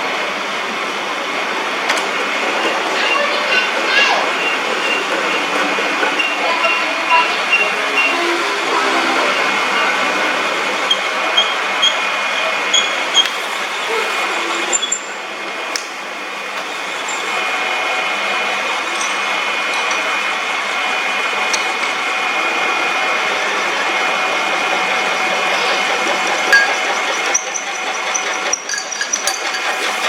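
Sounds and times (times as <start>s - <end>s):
metal lathe whining: 0.1s - 30.0s.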